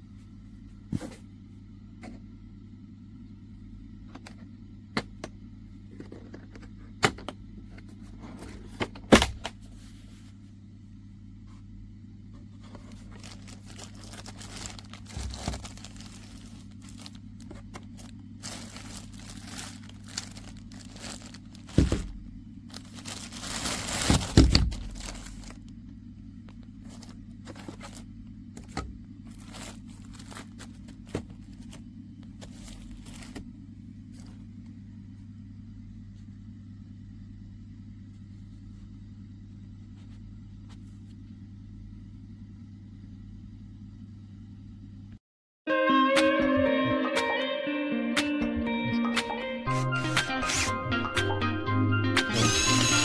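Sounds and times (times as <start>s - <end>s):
steady low hum: 0.0s - 45.2s
packaging rustling and crinkling: 12.6s - 25.8s, 26.6s - 33.5s
plastic items clicking and knocking: 13.2s - 25.6s.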